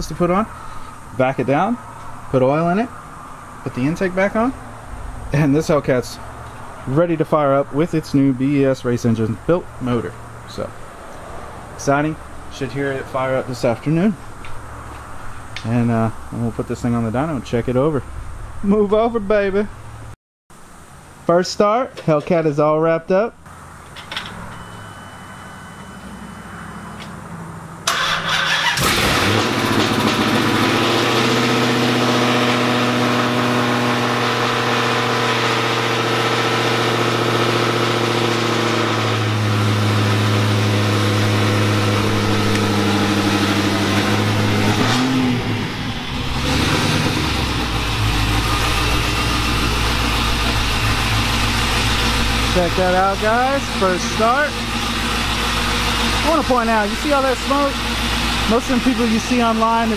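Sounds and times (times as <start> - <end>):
car engine starting and idling: 23.5 - 59.9.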